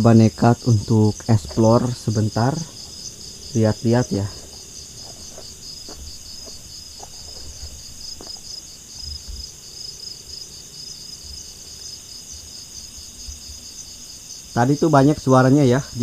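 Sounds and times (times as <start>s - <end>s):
insects trilling: 0.0s - 16.0s
soft low thumps: 1.2s - 9.5s.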